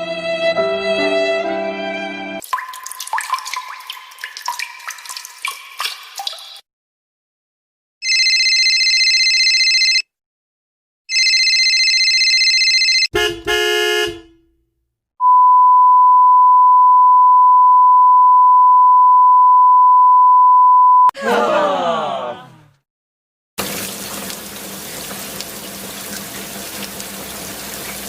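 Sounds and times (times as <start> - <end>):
short honk: 13.1 - 14.5
steady single-pitch beep: 15.2 - 21.1.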